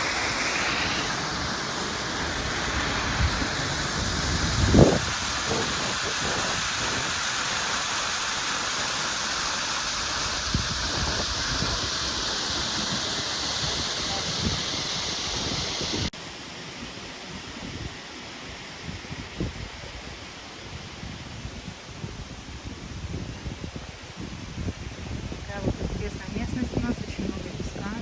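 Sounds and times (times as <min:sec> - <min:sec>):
waterfall rushing: 0:00.0 - 0:19.4.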